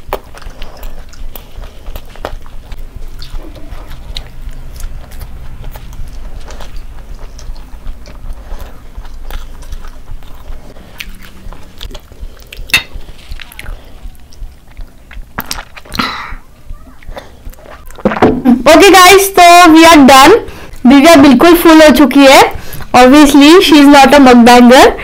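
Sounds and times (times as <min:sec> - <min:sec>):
crackly mouth clicks: 0:00.0 - 0:18.0
chewing and biting food: 0:00.0 - 0:18.1.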